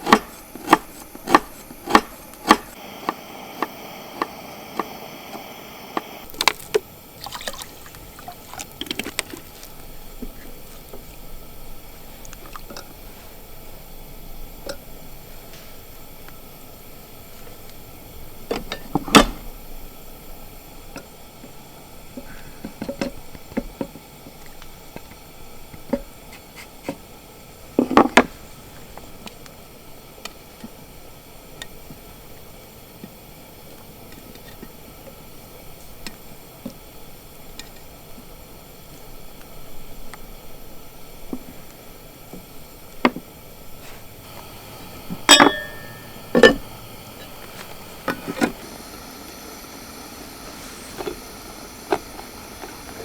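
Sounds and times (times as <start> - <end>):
faint steady hiss: 0.0 - 53.0
objects knocking and clicking: 6.3 - 10.4.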